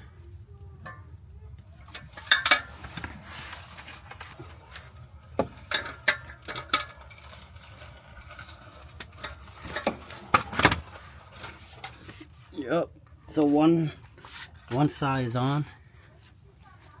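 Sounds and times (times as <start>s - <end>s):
hand tools clinking on metal: 1.8s - 3.0s.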